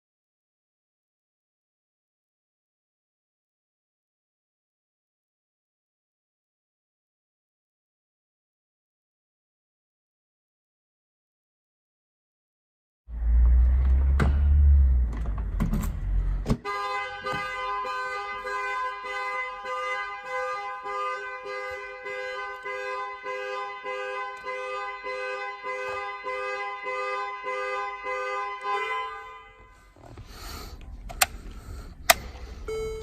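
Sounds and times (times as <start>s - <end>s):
car alarm horns honking: 16.6s - 30.0s, 32.0s - 33.0s.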